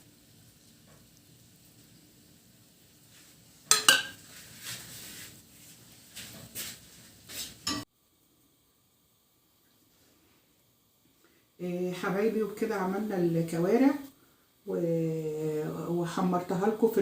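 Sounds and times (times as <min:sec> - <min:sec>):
dishes and cutlery clinking: 0:03.7 - 0:04.3, 0:07.6 - 0:07.9.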